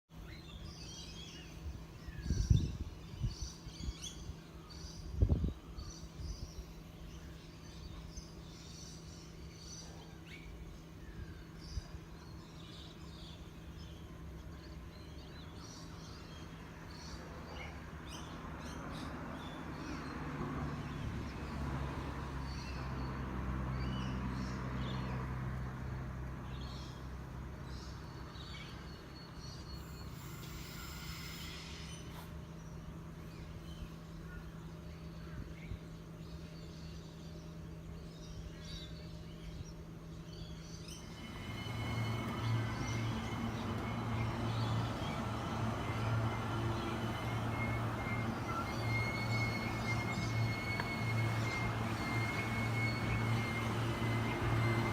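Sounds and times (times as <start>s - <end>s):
train hum and rumble: 0.2s - 54.9s
birds chirping: 25.8s - 54.9s.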